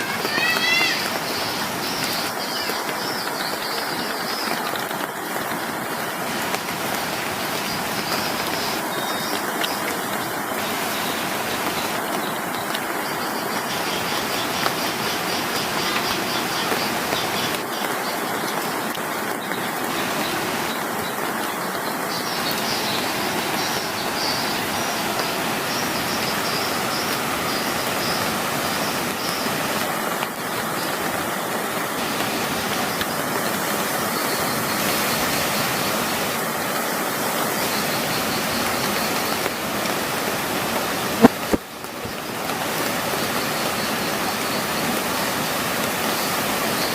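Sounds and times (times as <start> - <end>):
heavy rain: 0.0 - 46.9
rushing tidal water: 0.0 - 46.9
faint high chirping: 20.0 - 29.6.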